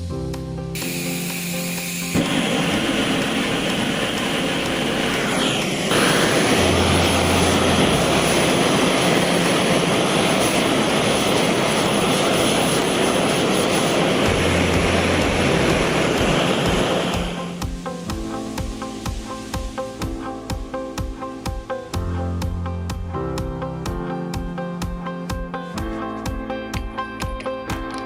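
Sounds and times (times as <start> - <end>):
gas torch flame burning: 0.7 - 20.6.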